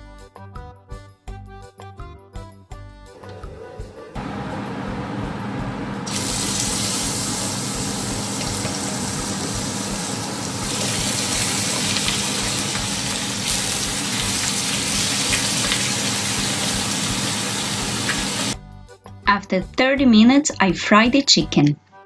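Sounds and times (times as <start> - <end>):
steady low hum: 3.2 - 15.1
chicken sizzling in hot fat: 6.0 - 18.6.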